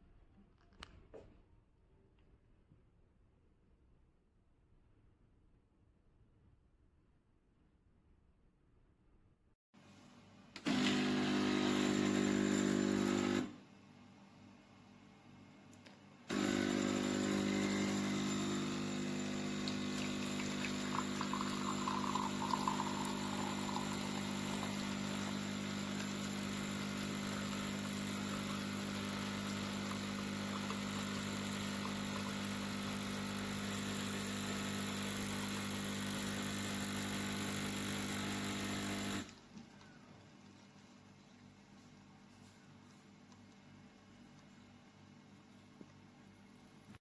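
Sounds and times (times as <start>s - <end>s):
espresso machine pump buzzing: 10.6s - 13.6s, 16.3s - 39.4s.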